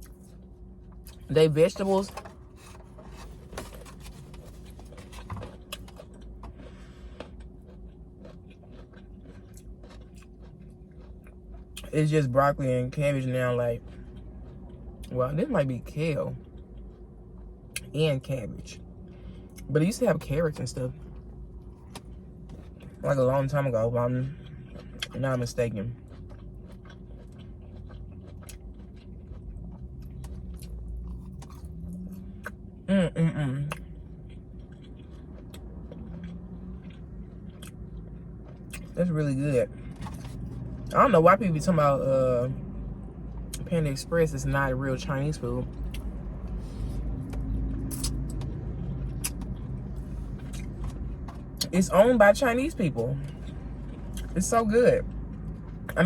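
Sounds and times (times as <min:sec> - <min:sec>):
faint steady hum: 0:00.0 - 0:56.0
chewing: 0:02.0 - 0:11.9, 0:13.5 - 0:15.2, 0:16.4 - 0:17.9, 0:24.2 - 0:32.6, 0:33.7 - 0:39.0, 0:39.7 - 0:41.0, 0:45.6 - 0:51.7, 0:53.2 - 0:56.0.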